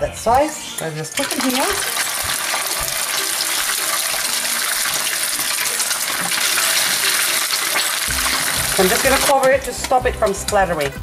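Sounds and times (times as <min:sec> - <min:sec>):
fish frying in hot oil: 0:01.1 - 0:09.4.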